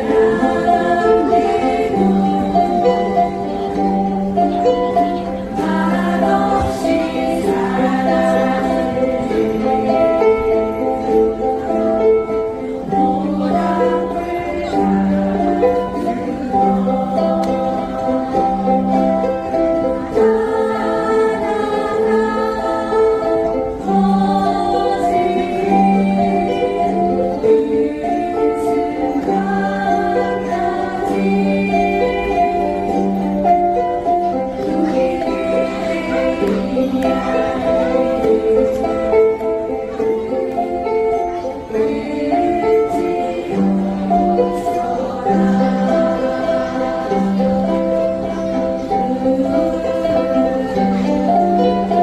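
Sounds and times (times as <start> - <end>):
group singing in unison: 0.0 - 52.0
ukulele ensemble strumming: 0.0 - 52.0.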